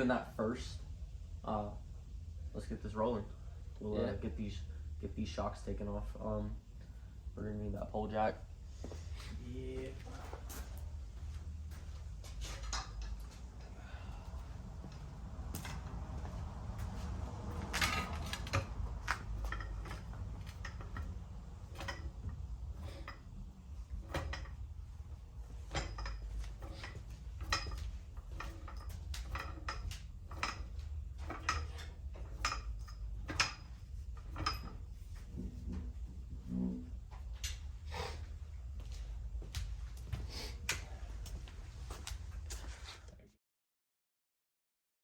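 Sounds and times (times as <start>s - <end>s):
low hum: 0.0s - 42.5s
metal tools clinking: 10.0s - 13.4s, 17.4s - 35.0s.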